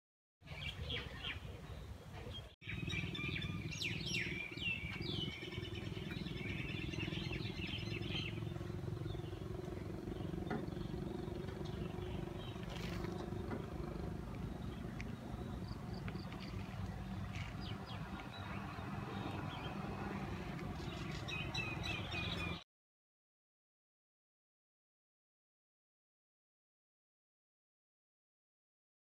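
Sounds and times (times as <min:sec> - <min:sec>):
birds chirping and calling: 0:00.5 - 0:22.6
steady low hum: 0:02.7 - 0:20.7.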